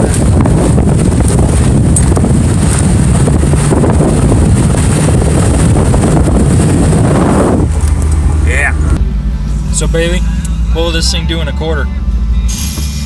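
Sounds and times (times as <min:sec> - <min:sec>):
wind buffeting microphone: 0:00.0 - 0:09.0
engine and road rumble: 0:00.0 - 0:13.0.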